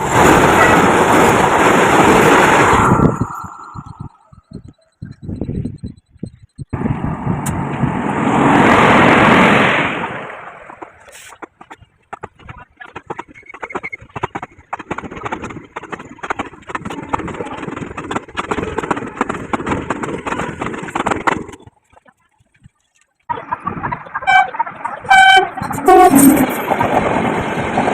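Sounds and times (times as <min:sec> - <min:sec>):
train rushing past: 0:00.0 - 0:04.3, 0:06.8 - 0:11.0, 0:24.6 - 0:27.9
wheels clattering on rails: 0:07.5 - 0:27.9.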